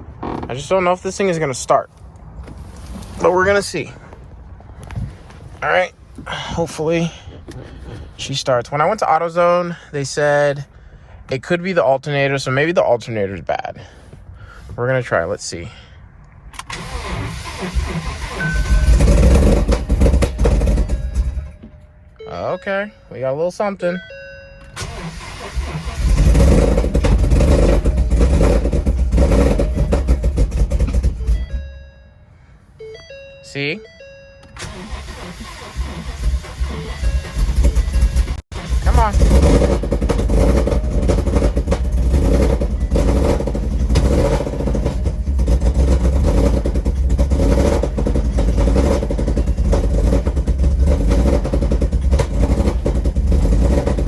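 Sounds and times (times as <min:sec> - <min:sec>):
car engine starting and running rough: 0:00.0 - 0:09.2, 0:16.5 - 0:21.9, 0:24.6 - 0:32.0, 0:34.5 - 0:54.0.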